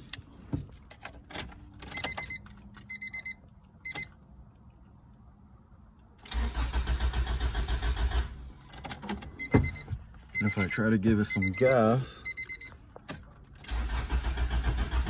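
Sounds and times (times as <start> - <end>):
keys clicking in ignition: 0.0 - 4.2, 6.2 - 15.0
electronic warning chime beeps: 1.9 - 4.1, 9.4 - 12.8
starter motor cranking engine: 6.2 - 8.5, 13.6 - 15.0.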